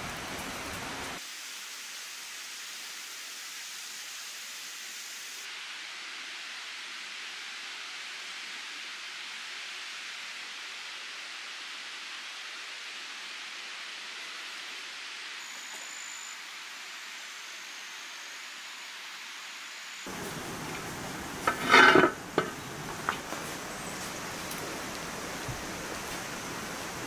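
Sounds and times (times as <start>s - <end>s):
light rain hissing: 0.0s - 27.0s
spoon scraping a pot: 20.1s - 23.2s.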